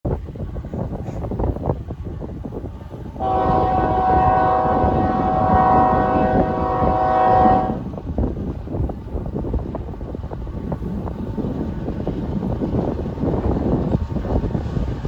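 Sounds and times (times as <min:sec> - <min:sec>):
wind rumble on microphone: 0:00.0 - 0:15.0
locomotive air horn blast: 0:03.2 - 0:07.9.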